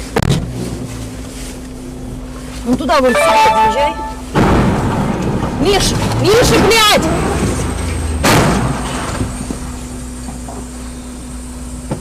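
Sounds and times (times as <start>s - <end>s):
car cabin hum: 0.0s - 12.0s
loud bang: 4.0s - 6.8s, 8.2s - 9.3s.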